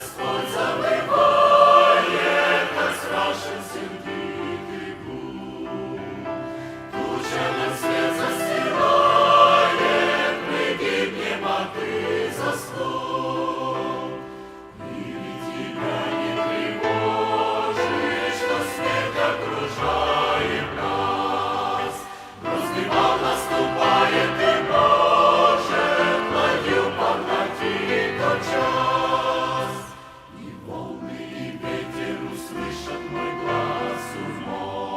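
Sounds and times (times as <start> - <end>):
choir singing a hymn: 0.0 - 34.9.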